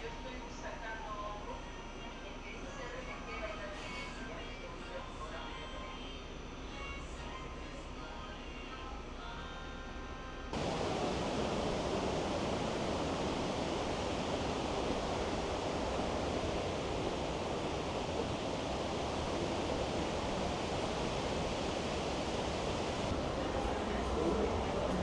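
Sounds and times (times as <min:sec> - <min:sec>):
steady rushing noise: 0:10.6 - 0:25.0.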